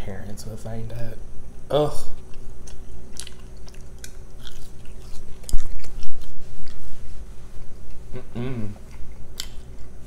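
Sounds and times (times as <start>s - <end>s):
person chewing crunchy food: 2.1s - 6.9s.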